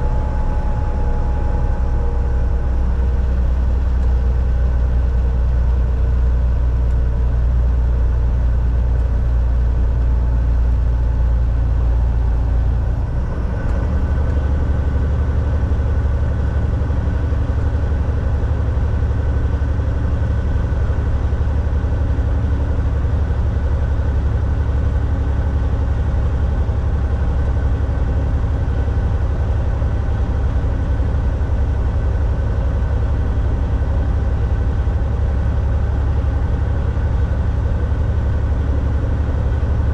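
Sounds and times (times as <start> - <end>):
truck diesel engine droning: 0.0 - 39.9
road noise: 8.9 - 39.9.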